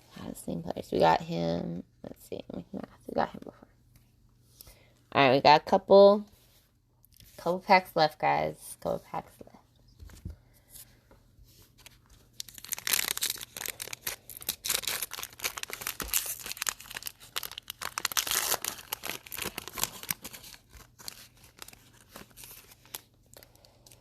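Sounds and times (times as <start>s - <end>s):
wrapper tearing and crinkling: 12.3s - 24.0s.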